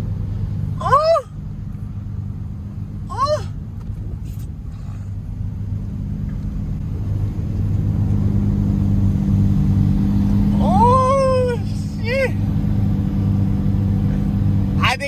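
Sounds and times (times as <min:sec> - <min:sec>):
car engine droning: 0:00.0 - 0:15.0.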